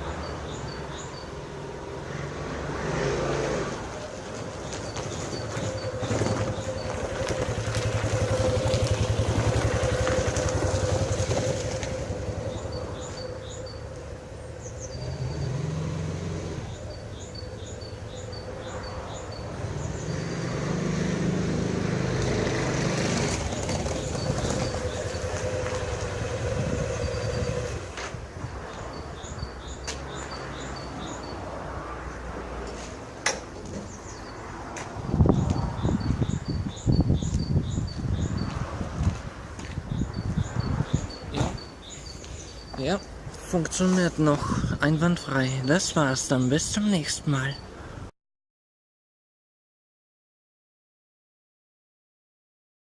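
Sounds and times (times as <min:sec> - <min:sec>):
motorcycle engine revving: 0:04.7 - 0:28.3.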